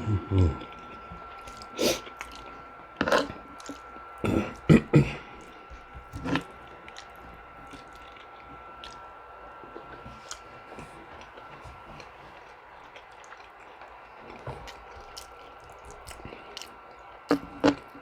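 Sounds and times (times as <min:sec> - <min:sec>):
chewing with wet smacking: 0:00.0 - 0:18.0.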